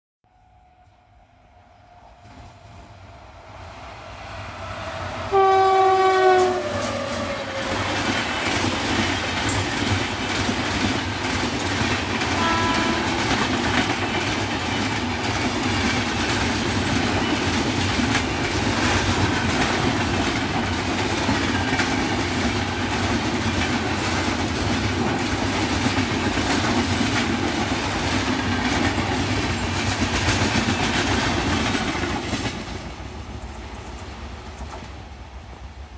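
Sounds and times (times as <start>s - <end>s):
train rumbling past: 0.3s - 35.9s
locomotive horn blast: 5.2s - 7.8s, 12.3s - 13.3s
wheels clacking over rail joints: 6.4s - 35.0s.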